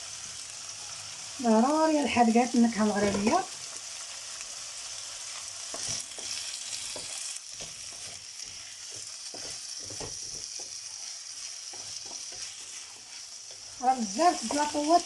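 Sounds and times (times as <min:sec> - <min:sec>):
vegetables sizzling in oil: 0:00.0 - 0:15.0
utensil stirring and scraping pan: 0:02.7 - 0:03.9, 0:04.9 - 0:15.0.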